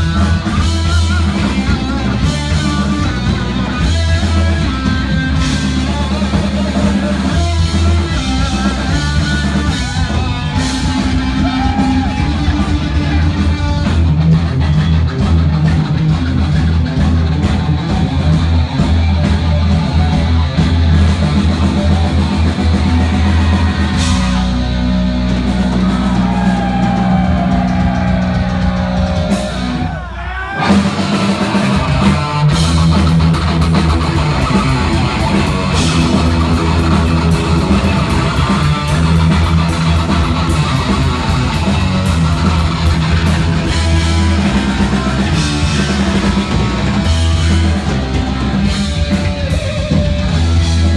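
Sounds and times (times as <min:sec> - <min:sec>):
bass guitar: 0:00.0 - 0:50.9
distorted electric guitar: 0:00.0 - 0:50.9
drum kit: 0:00.0 - 0:50.9.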